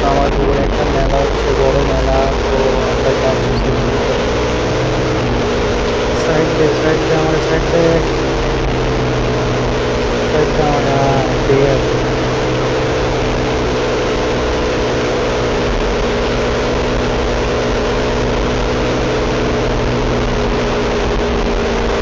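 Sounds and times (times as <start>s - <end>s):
motorcycle engine humming: 0.0s - 15.6s
wind and road noise: 0.0s - 22.0s.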